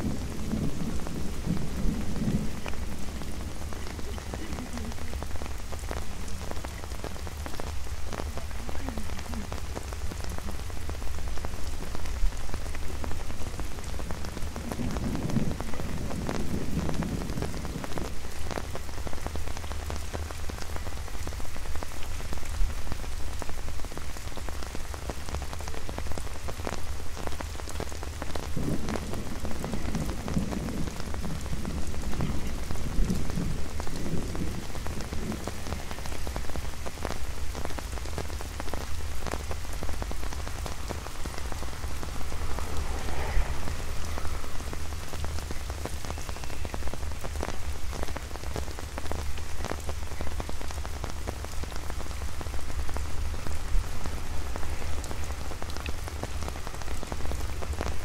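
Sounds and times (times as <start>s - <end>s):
steady low rumble: 0.0s - 7.2s
rain pattering on an umbrella: 0.0s - 58.0s.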